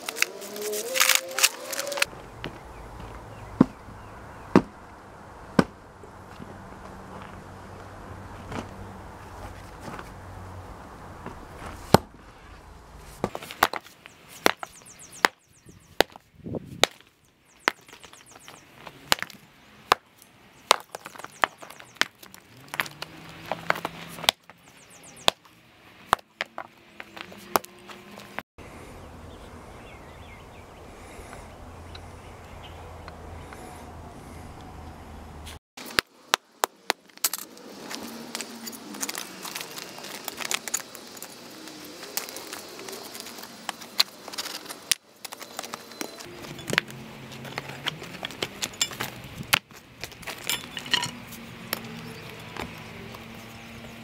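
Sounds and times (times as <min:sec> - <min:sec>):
low outdoor hum: 0:00.0 - 0:16.2, 0:17.2 - 0:54.0
concrete rubble being broken: 0:50.2 - 0:51.2.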